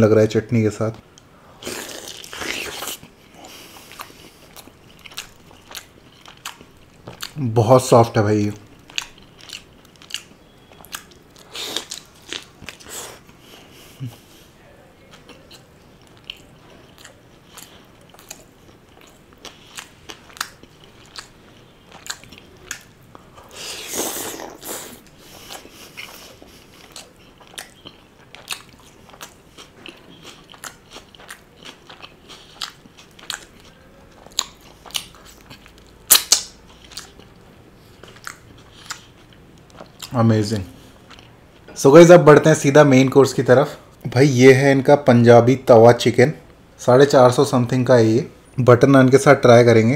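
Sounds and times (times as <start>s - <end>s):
noisy bite: 36.1s - 36.6s
wet mouth clicks and smacks: 36.1s - 37.1s.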